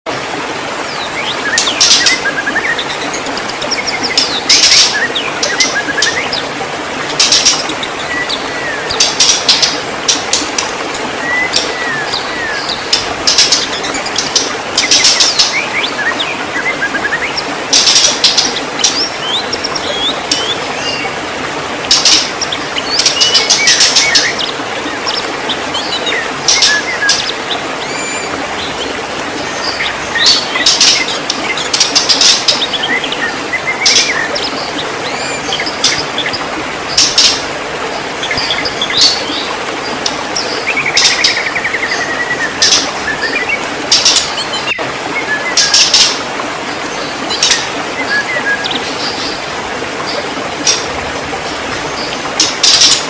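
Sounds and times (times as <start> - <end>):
bird singing: 0.9 - 21.2, 21.9 - 46.2, 46.9 - 53.0.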